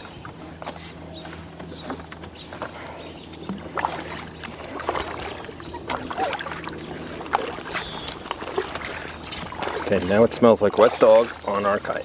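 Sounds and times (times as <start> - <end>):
paddle splashes and drips: 3.4 - 12.0.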